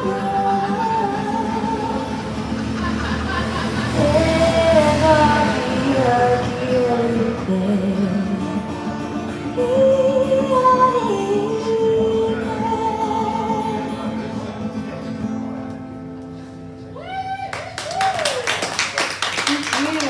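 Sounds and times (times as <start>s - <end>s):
person singing: 0.0s - 2.6s, 3.8s - 8.8s
acoustic guitar: 0.0s - 17.5s.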